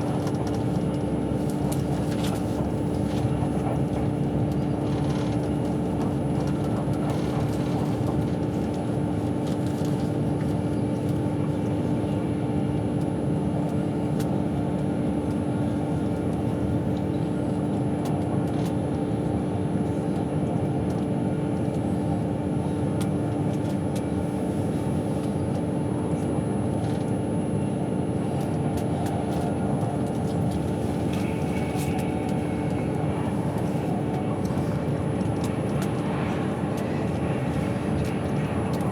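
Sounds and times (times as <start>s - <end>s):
constant hum: 0.0s - 38.9s
train wheels rumbling on rail: 28.3s - 38.9s.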